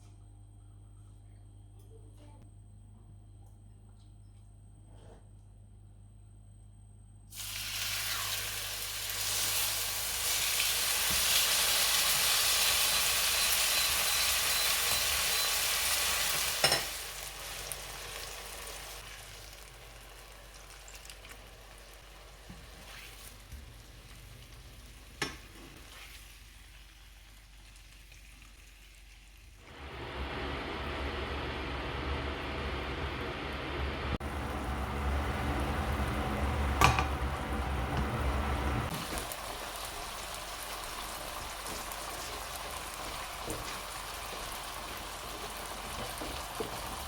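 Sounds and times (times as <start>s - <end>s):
food sizzling in a frying pan: 7.3s - 30.7s, 34.2s - 47.0s.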